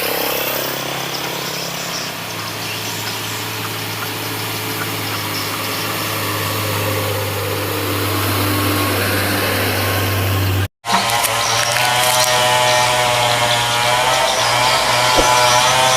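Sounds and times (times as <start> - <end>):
truck engine droning: 0.0 - 10.7
road noise: 0.0 - 15.9.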